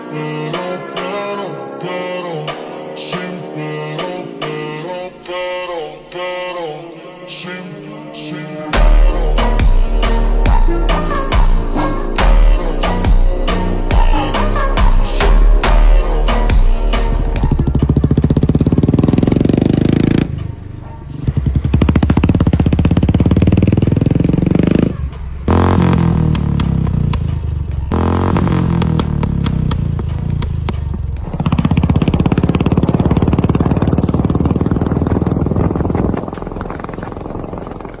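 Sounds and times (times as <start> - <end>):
motorcycle engine revving: 16.5 - 38.0.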